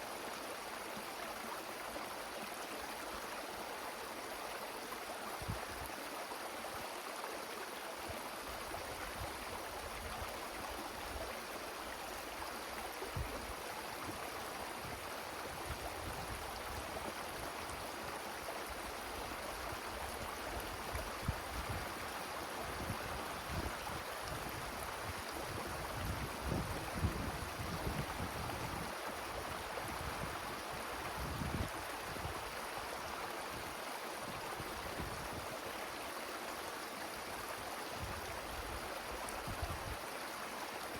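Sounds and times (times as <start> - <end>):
wind rushing through trees: 0.0 - 40.9
wind gusts buffeting microphone: 25.5 - 28.9.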